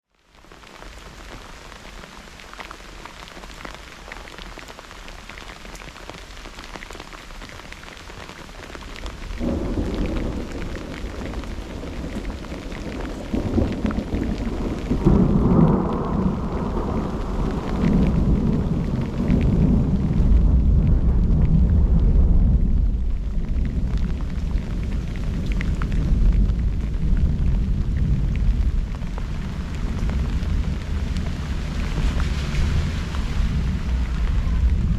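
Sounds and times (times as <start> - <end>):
rain hissing: 0.1 - 34.9
thunder rumbling: 9.0 - 34.9.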